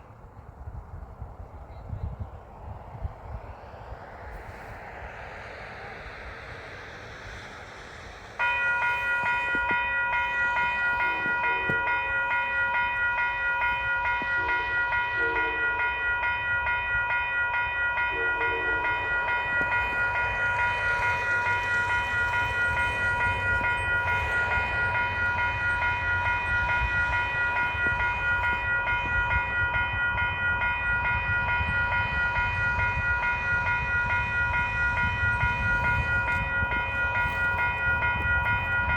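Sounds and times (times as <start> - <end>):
low rumble of train: 0.0 - 38.9
railroad crossing bell ringing: 8.3 - 38.9.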